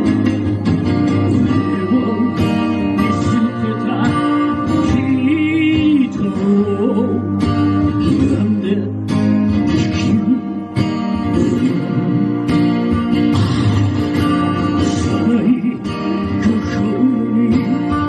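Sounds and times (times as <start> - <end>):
steady drum beat: 0.0 - 6.2, 11.0 - 18.0
strummed acoustic guitar: 0.0 - 18.0.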